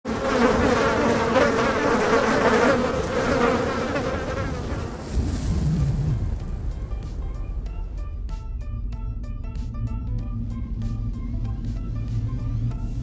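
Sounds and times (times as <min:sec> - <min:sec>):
dense buzzing drone: 0:00.1 - 0:13.0
low rumble: 0:04.5 - 0:13.0.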